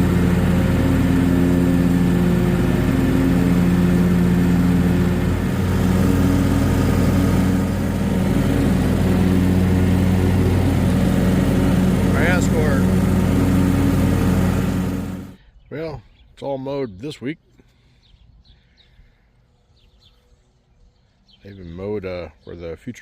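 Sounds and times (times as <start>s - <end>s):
tractor diesel engine running: 0.0s - 15.4s.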